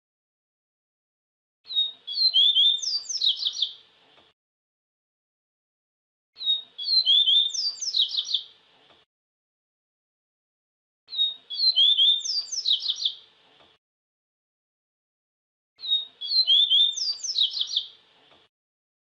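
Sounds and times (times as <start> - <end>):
bird singing whistled notes: 1.7 - 3.8, 6.4 - 8.5, 11.1 - 13.2, 15.8 - 18.0.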